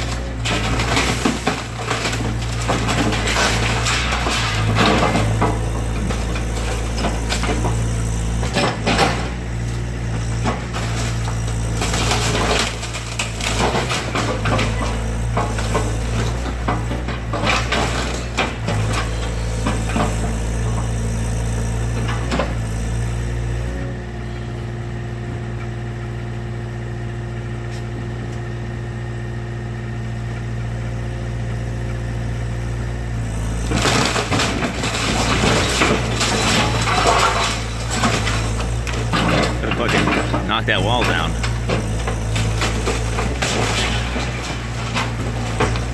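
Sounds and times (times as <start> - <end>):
excavator diesel engine: 0.0 - 45.9.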